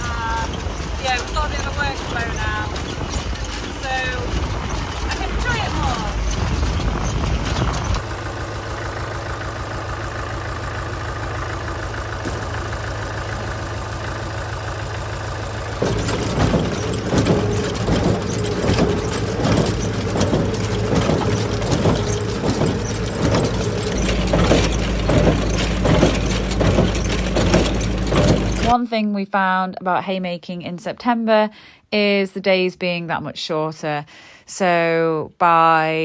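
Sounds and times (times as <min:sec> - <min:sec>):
tractor engine running: 0:00.0 - 0:28.8.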